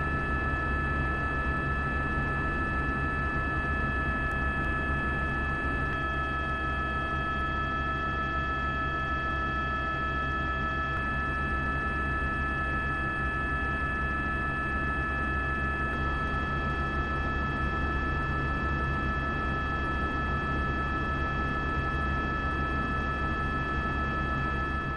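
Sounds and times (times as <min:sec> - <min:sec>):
mechanical drone with low hum: 0:00.0 - 0:06.7.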